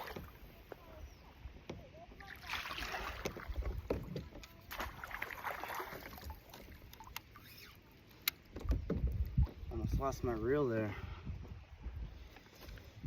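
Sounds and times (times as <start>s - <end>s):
water splashing: 0.0s - 0.7s, 2.0s - 7.6s.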